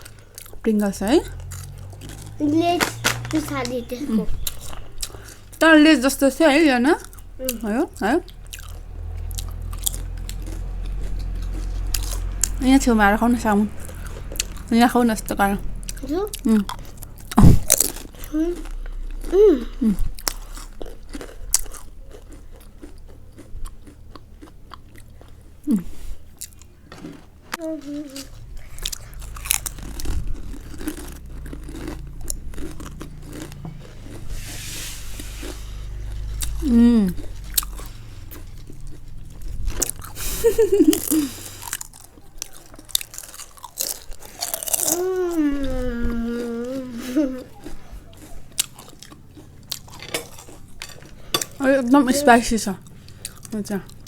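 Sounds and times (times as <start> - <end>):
crunching crisp chips: 0.0 - 5.7, 6.3 - 14.7, 15.6 - 54.0
person humming: 25.7 - 25.9, 36.6 - 37.2, 44.8 - 47.6.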